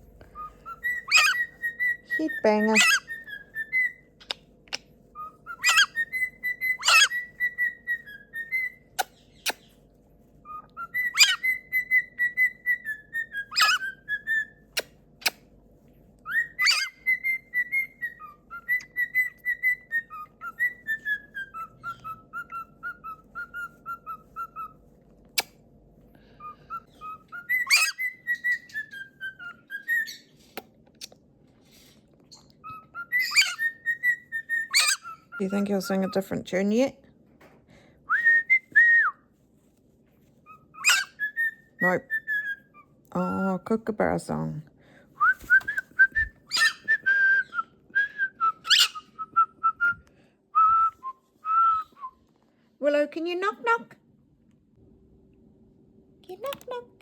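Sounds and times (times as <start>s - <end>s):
parrot whistling a tune: 0.4s - 4.4s, 5.2s - 9.7s, 10.4s - 15.4s, 16.2s - 24.8s, 26.4s - 30.4s, 32.4s - 35.5s, 38.1s - 39.3s, 40.4s - 42.9s, 45.2s - 52.3s
parrot squawks: 0.5s - 9.7s, 10.6s - 15.4s, 16.3s - 24.8s, 26.6s - 30.3s, 32.7s - 36.0s, 40.4s - 42.9s, 46.5s - 46.9s, 48.6s - 49.2s.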